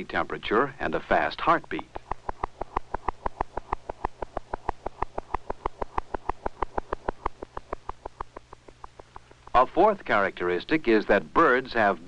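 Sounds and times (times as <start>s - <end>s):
steady low hum: 0.0s - 12.0s
fast heartbeat: 1.9s - 9.9s.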